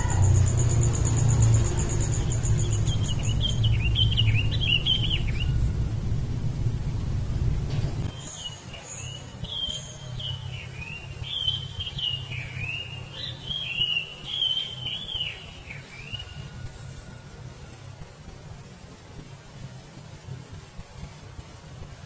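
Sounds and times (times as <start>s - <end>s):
songbird singing: 0.0s - 6.7s, 8.0s - 16.9s
low rumble: 0.0s - 8.2s.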